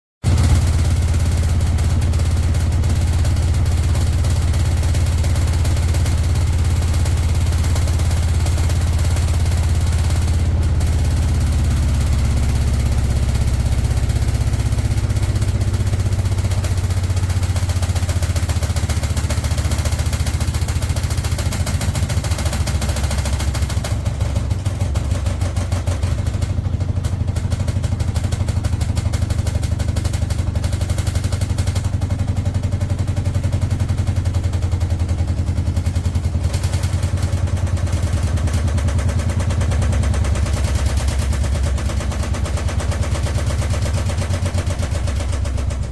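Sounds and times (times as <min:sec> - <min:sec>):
machine running with low rumble: 0:00.2 - 0:45.9
very fast rattle: 0:00.2 - 0:45.9.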